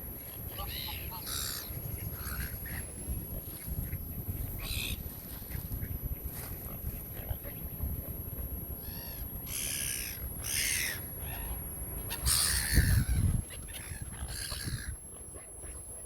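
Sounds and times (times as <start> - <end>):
gulls calling: 0.4 - 3.1, 8.8 - 16.0.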